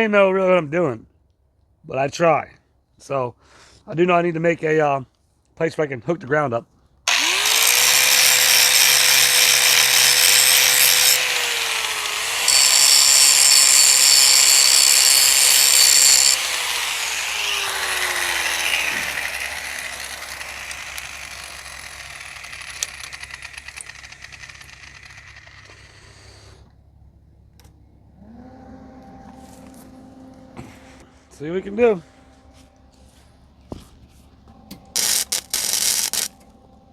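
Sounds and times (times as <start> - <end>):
angle grinder grinding metal: 7.1 - 26.6, 34.7 - 36.4.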